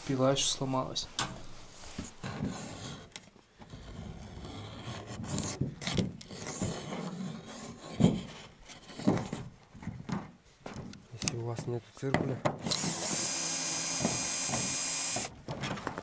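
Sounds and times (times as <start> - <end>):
wood scraping and rubbing: 1.5 - 10.9
knocks on wood: 12.1 - 13.0.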